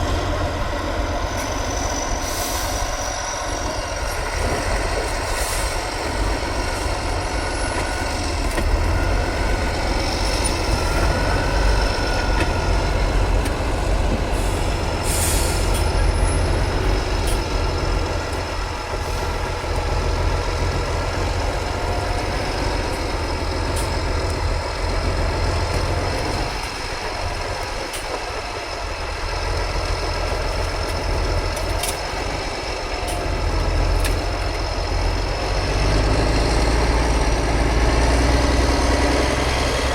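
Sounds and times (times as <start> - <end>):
diesel engine rumbling: 0.0 - 39.9.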